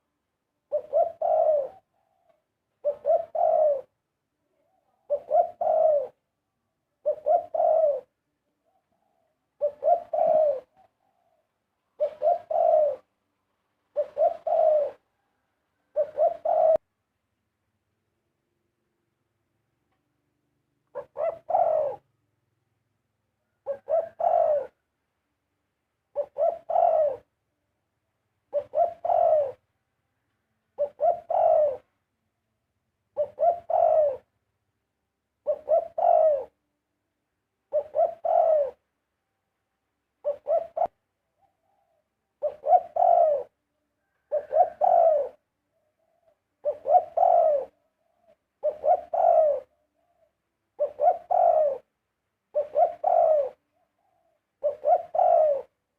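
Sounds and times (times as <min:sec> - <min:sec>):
dove cooing: 0:00.6 - 0:06.2, 0:07.0 - 0:13.1, 0:13.9 - 0:16.8, 0:20.8 - 0:22.1, 0:23.4 - 0:24.9, 0:26.1 - 0:27.3, 0:28.5 - 0:29.7, 0:30.8 - 0:32.0, 0:33.1 - 0:34.3, 0:35.4 - 0:36.6, 0:37.7 - 0:38.9, 0:40.2 - 0:51.9, 0:52.5 - 0:55.8.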